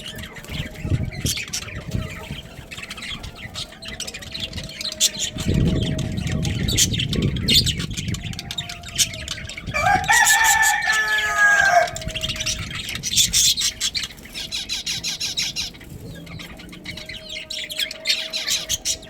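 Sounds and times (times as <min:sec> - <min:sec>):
budgies chirping: 0:00.0 - 0:19.0
rooster crowing: 0:08.3 - 0:12.7.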